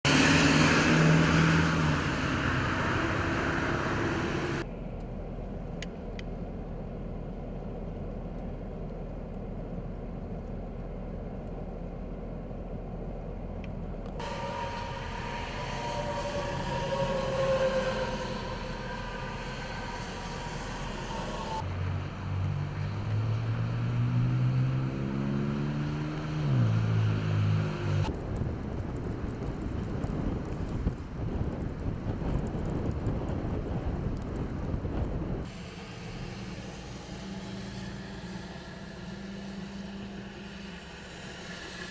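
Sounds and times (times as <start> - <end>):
vehicle engine passing: 0.0 - 4.7, 14.2 - 28.1
traffic noise: 0.0 - 41.9.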